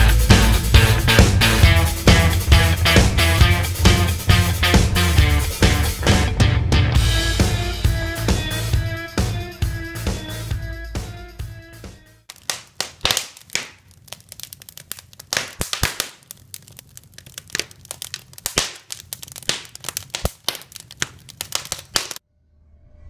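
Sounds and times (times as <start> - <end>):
wood fire crackling and popping: 12.2 - 22.2.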